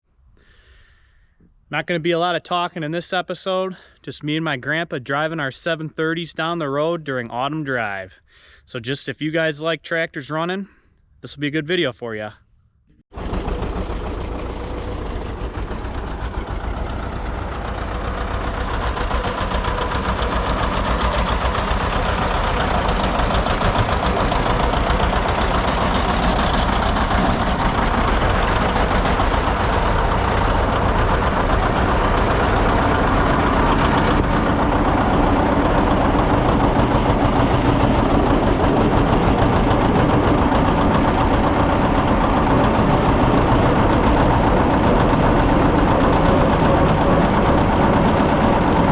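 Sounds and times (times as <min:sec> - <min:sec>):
tractor engine running: 0:13.1 - 0:48.9.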